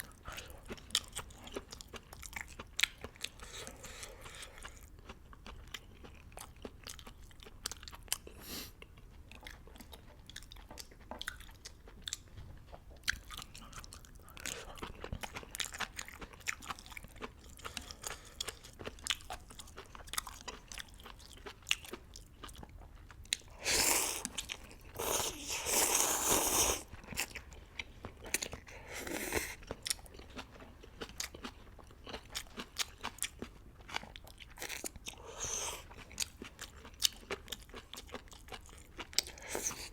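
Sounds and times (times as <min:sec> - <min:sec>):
loud slurps: 0:23.6 - 0:24.4, 0:25.0 - 0:26.9.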